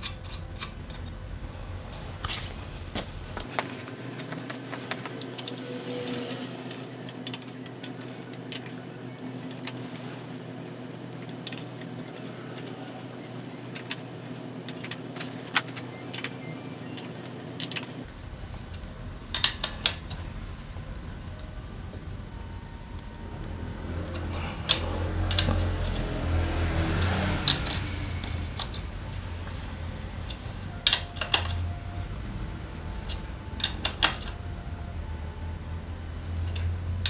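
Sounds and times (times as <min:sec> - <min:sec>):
metal tools clinking: 0:00.0 - 0:01.3, 0:04.2 - 0:10.1, 0:11.2 - 0:13.1, 0:23.6 - 0:31.8, 0:32.9 - 0:34.5
low hum: 0:00.0 - 0:03.5, 0:18.0 - 0:37.0.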